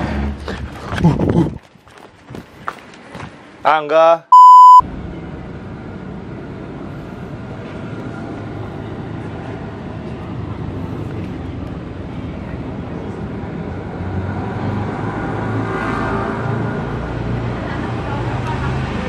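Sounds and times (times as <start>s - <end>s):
passing traffic hum: 4.3s - 19.0s.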